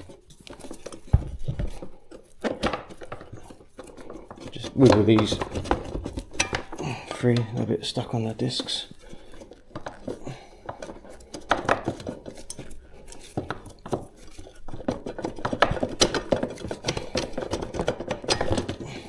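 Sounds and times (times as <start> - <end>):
metallic clinks and knocks: 0.6 - 7.7.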